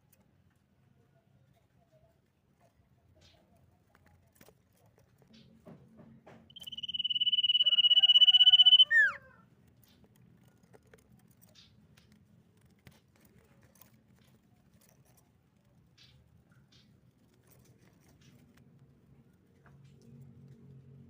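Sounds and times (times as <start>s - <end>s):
bird trilled whistle: 6.5s - 9.2s.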